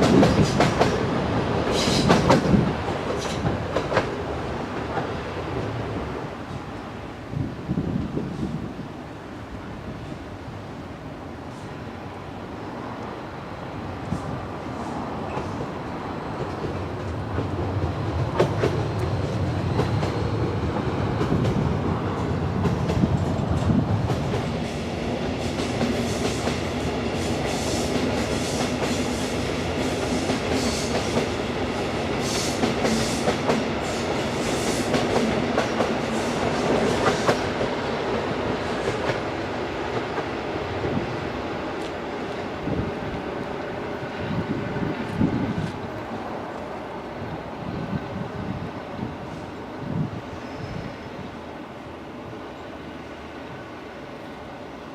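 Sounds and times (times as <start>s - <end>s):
train wheels clicking on rails: 0.0s - 6.8s, 14.0s - 46.8s
train rumble: 0.0s - 54.9s.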